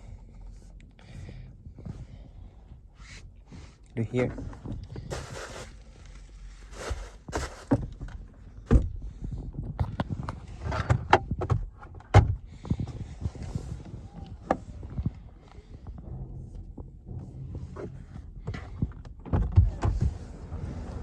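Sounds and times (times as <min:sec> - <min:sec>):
heavy thumps: 0:11.0 - 0:20.2
car doors and fittings clicking: 0:17.2 - 0:20.2.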